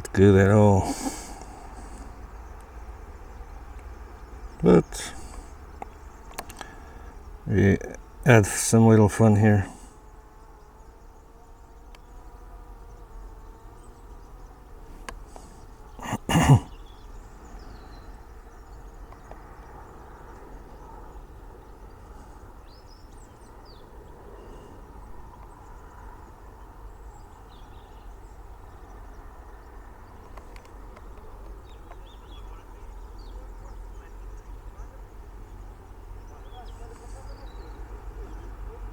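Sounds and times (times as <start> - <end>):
faint bird chirps: 9.9 - 38.9.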